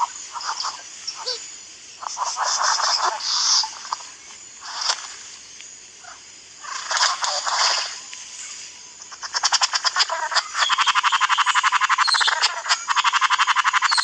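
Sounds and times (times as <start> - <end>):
bird rattling courtship call: 2.0 - 5.2, 6.0 - 8.1, 9.0 - 14.0.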